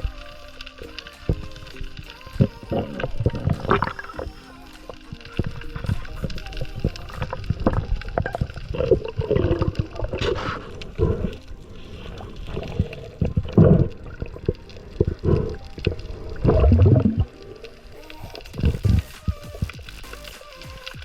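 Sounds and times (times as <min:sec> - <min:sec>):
water gurgling and sloshing: 0:00.0 - 0:20.3.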